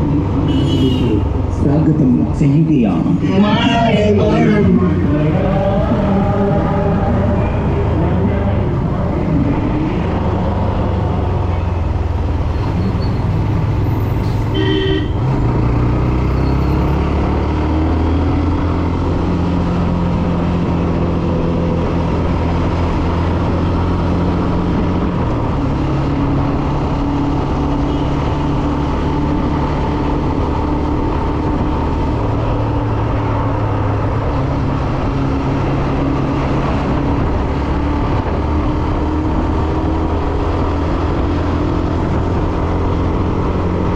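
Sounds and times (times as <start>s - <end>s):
road and wind noise: 0.0s - 43.9s
short horn toot: 14.2s - 15.2s.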